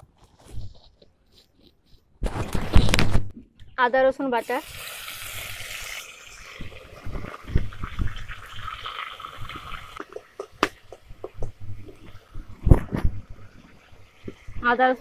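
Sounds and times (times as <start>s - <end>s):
paste sizzling in hot oil: 4.4s - 11.1s.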